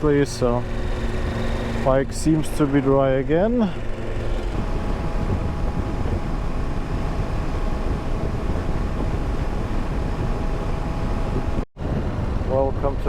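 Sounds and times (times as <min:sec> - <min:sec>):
motorcycle engine and road rumble: 0:00.0 - 0:13.0
wind rushing: 0:03.5 - 0:12.9.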